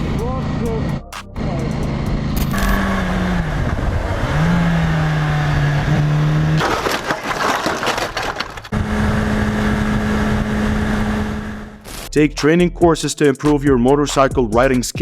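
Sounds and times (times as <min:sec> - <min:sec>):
motorcycle engine running: 0:00.0 - 0:06.6
crunching cracking crash impacts: 0:06.6 - 0:09.1.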